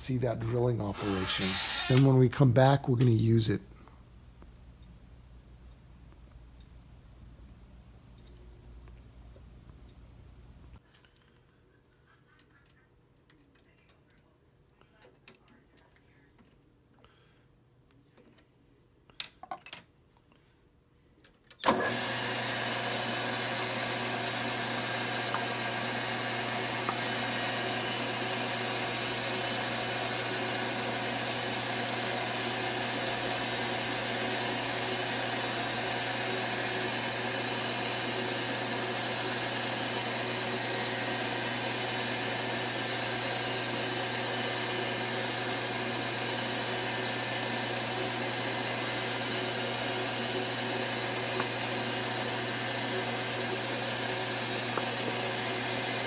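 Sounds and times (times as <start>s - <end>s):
lathe motor humming: 0.4s - 2.2s, 21.7s - 56.0s
clicks: 31.7s - 34.8s.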